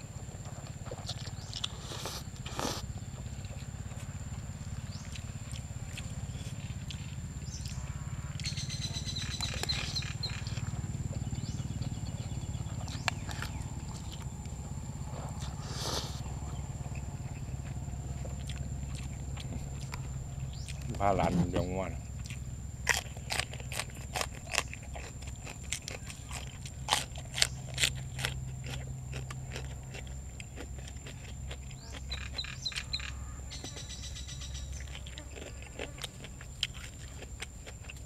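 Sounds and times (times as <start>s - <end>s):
person chewing food: 0.0s - 8.5s, 11.4s - 21.6s, 22.2s - 33.0s, 34.8s - 38.0s
low hum: 1.3s - 24.0s.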